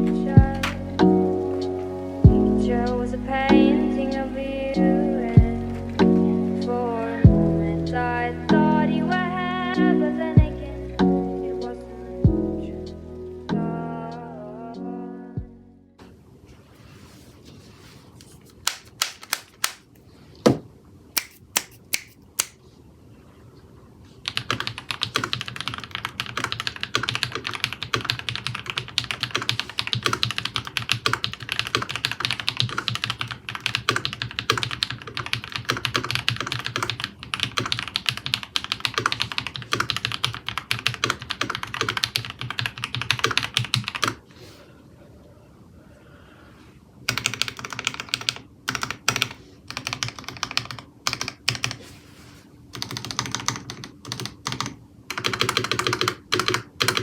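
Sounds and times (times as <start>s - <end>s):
mechanical keyboard typing: 18.6s - 19.8s, 24.2s - 44.2s, 47.1s - 51.8s, 52.7s - 57.0s.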